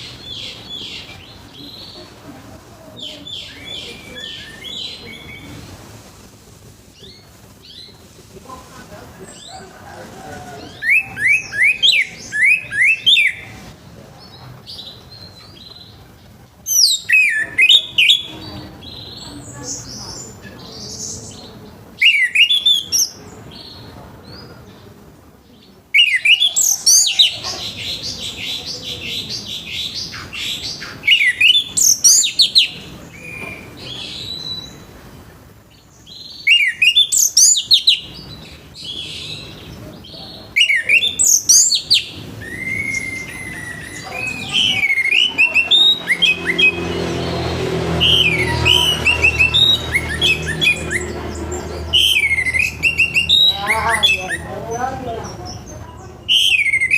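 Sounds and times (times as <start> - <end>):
thrush singing whistled phrases: 10.7 - 13.5, 16.7 - 18.3, 22.0 - 23.1, 26.0 - 27.3, 36.4 - 38.1, 40.5 - 47.1, 48.0 - 51.2, 52.0 - 54.5, 56.3 - 56.9.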